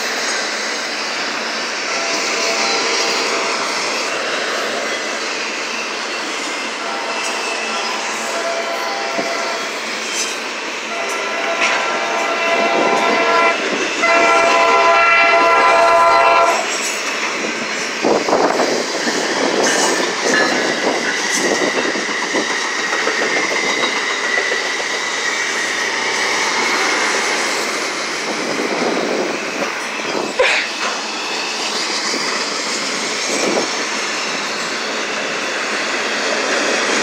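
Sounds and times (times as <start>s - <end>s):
train cars rumbling and clattering: 0.0s - 37.0s
faint high wheel squeal: 1.9s - 13.3s, 28.8s - 35.4s
train horn chord: 6.8s - 9.8s, 10.9s - 16.7s.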